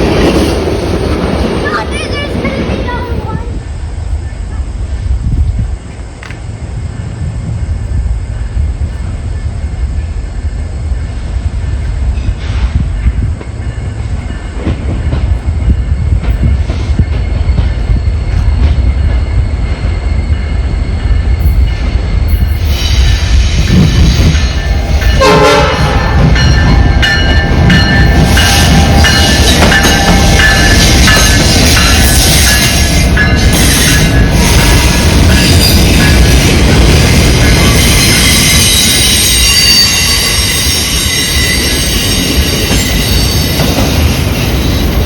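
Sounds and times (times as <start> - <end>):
diesel locomotive rumble: 0.0 - 45.0
train wheels squealing: 6.8 - 45.0
rail clatter: 11.1 - 45.0.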